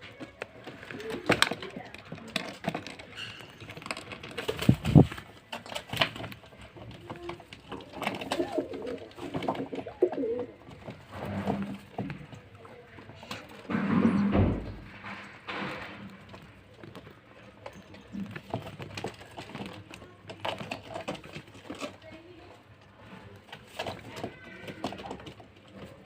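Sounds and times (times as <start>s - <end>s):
pigeons cooing: 7.9s - 10.7s.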